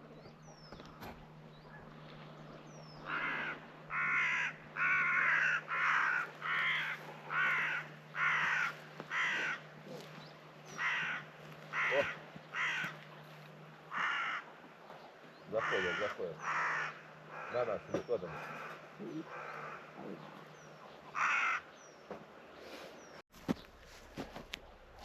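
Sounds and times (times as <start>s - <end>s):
faint low hum: 0.0s - 21.6s, 23.4s - 25.0s
crow cawing: 3.0s - 14.7s, 15.5s - 20.3s, 21.1s - 21.8s.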